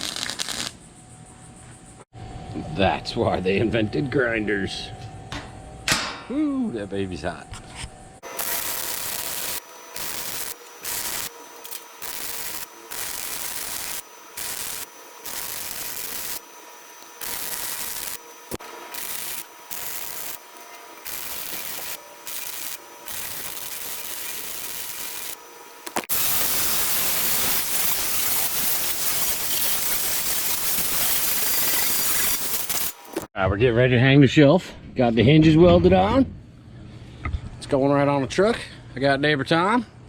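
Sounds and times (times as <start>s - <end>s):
welding arc crackling: 0.0s - 0.8s, 8.2s - 33.3s
loud hiss: 8.2s - 33.3s.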